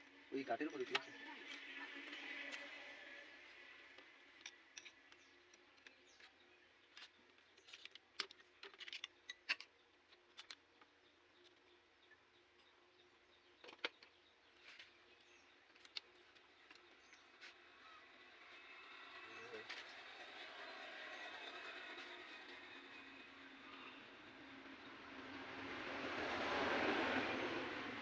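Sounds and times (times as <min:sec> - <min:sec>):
clicks of tools and metal parts: 0:04.0 - 0:11.6.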